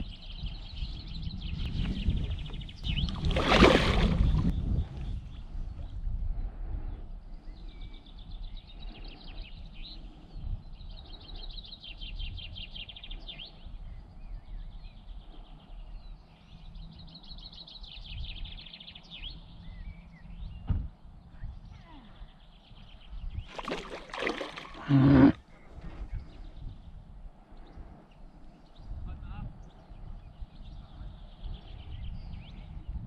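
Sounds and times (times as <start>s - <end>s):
songbird singing high trills: 7.4s - 20.7s.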